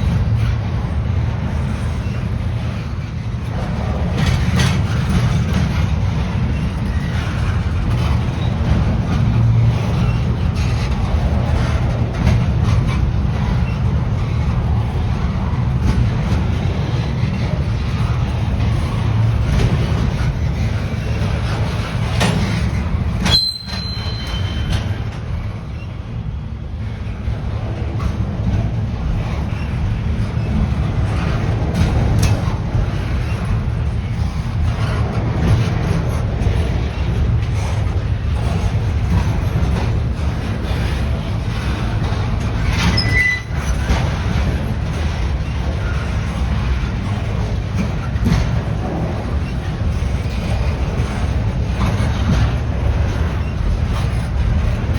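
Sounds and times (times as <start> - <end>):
train rumbling past: 0.0 - 54.9
high-pitched train squeal: 20.8 - 26.1, 40.9 - 46.4
high-pitched wheel squeal: 23.2 - 24.9, 42.8 - 43.7.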